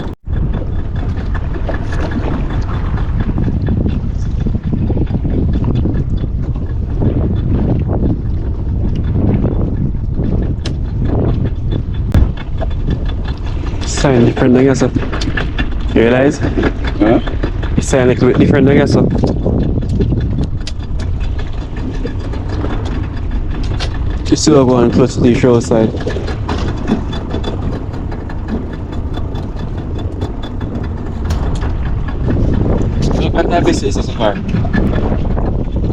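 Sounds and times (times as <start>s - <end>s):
faint rapid high ticking: 0.0s - 35.7s
boat engine idling: 0.0s - 35.9s
wind buffeting microphone: 0.0s - 35.9s
sharp knocks: 9.0s - 17.7s, 26.0s - 35.9s.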